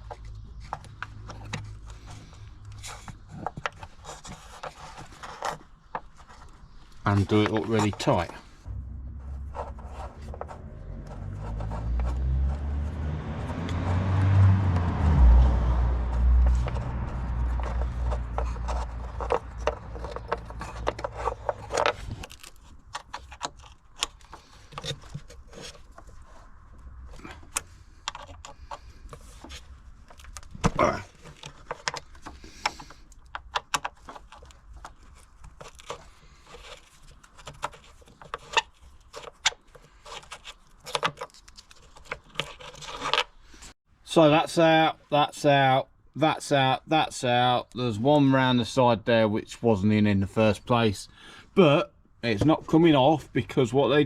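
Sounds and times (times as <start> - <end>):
low rumble: 8.6 - 20.4.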